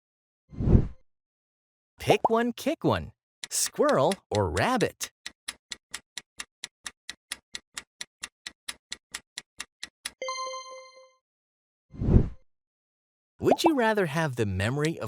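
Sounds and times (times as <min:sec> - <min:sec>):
clock-like ticking: 0:03.4 - 0:10.2, 0:14.6 - 0:15.0.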